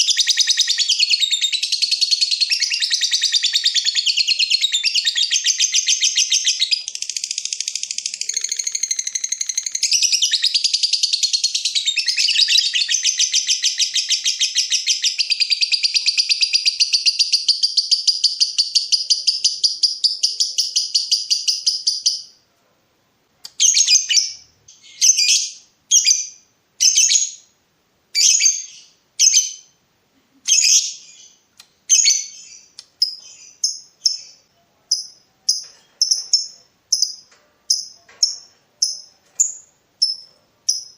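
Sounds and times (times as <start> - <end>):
lovebird chattering trill: 30.5 - 40.9.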